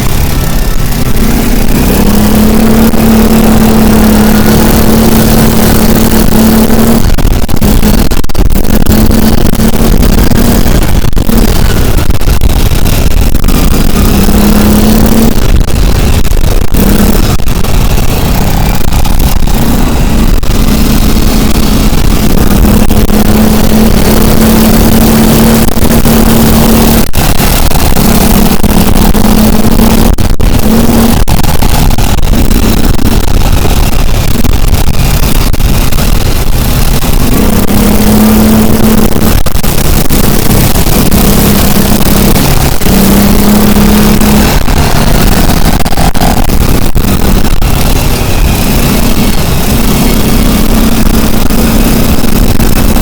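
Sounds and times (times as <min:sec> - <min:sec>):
rumbling road noise: 0:00.0 - 0:53.0
vehicle engine drone: 0:00.0 - 0:53.0.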